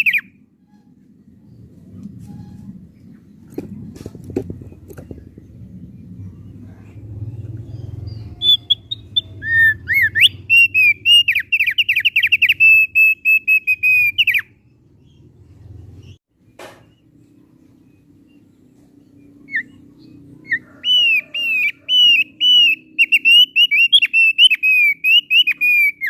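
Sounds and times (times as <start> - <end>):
bird whistled song: 0.0 - 0.9, 6.0 - 15.3, 16.8 - 26.0
low steady background hum: 0.0 - 26.0.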